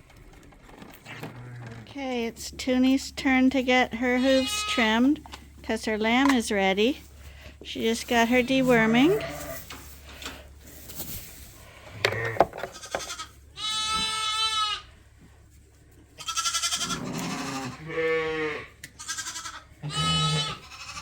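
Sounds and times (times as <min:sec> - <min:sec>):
sheep bleating: 0:04.0 - 0:05.1, 0:08.4 - 0:09.7, 0:12.0 - 0:14.9, 0:16.2 - 0:21.0.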